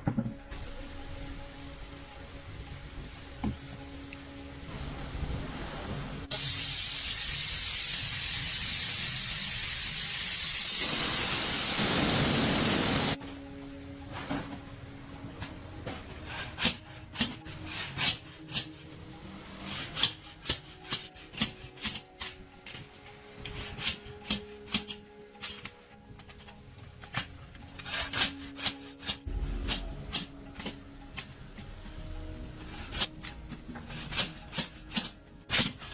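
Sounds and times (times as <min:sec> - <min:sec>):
loud steady hiss: 0:04.6 - 0:13.2.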